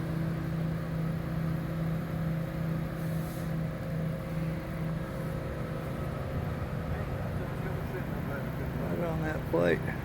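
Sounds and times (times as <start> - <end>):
diesel engine droning: 0.0 - 10.0
faint hiss: 2.8 - 4.1.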